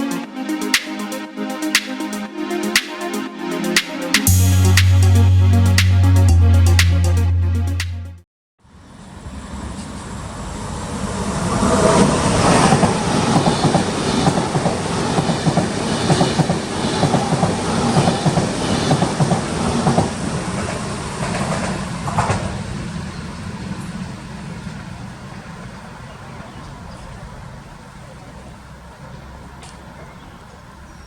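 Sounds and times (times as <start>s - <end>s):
high-speed train passing: 8.6s - 29.6s.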